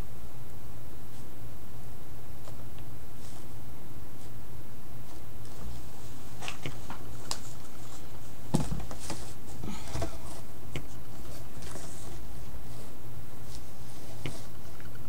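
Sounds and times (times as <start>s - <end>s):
low electrical hum: 0.0s - 15.0s
paper rustling: 5.0s - 15.0s.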